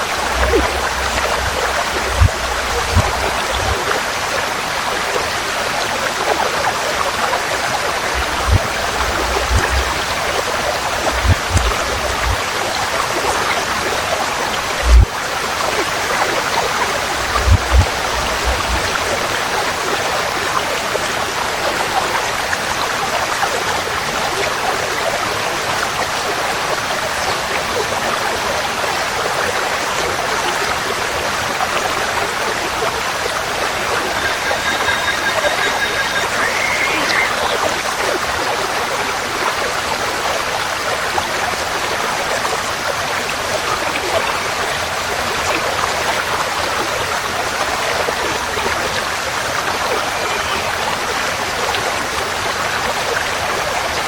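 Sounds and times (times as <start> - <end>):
forest stream flowing: 0.0 - 54.0
bird call with rising note: 33.7 - 37.7.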